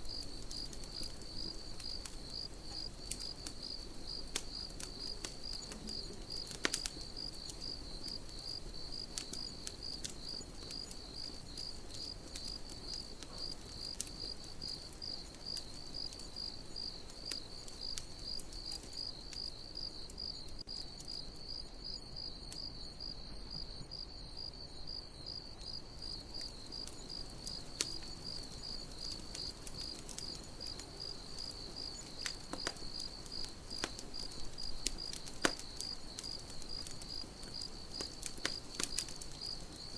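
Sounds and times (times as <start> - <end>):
campfire crackling: 0.0 - 23.6, 24.8 - 39.9
crickets chirping: 0.0 - 39.9.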